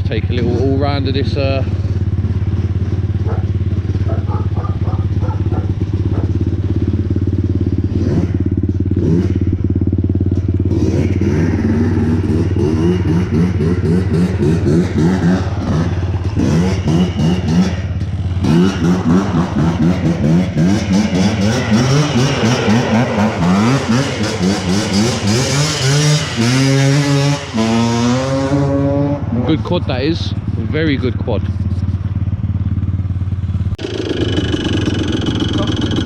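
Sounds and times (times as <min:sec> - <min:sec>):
quad engine idling and revving: 0:00.0 - 0:36.0.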